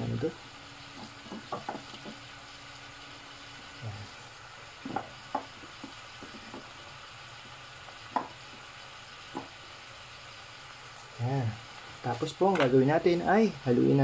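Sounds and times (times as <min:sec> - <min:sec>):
vegetables sizzling in a pan: 0:00.0 - 0:14.0
utensil knocking against pan: 0:01.3 - 0:02.2, 0:04.8 - 0:06.7, 0:08.1 - 0:08.4, 0:09.3 - 0:09.5.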